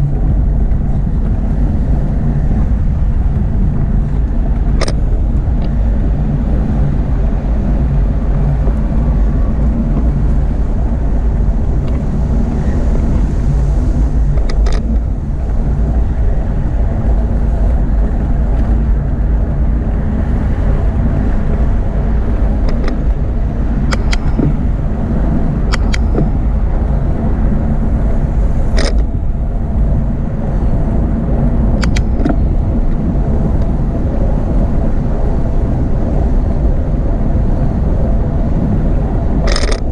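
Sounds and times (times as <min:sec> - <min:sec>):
motorway traffic rumble: 0:00.0 - 0:39.9
wind: 0:00.0 - 0:39.9
bicycle clicks and rattles: 0:04.5 - 0:05.8, 0:14.3 - 0:15.1, 0:23.8 - 0:24.6, 0:25.7 - 0:26.4, 0:28.7 - 0:29.2, 0:31.8 - 0:33.0, 0:39.4 - 0:39.9.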